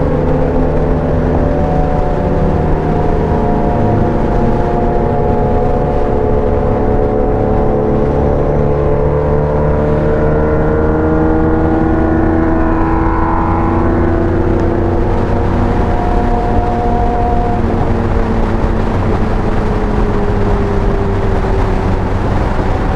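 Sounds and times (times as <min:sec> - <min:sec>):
motor vehicle engine running: 0:00.0 - 0:22.9.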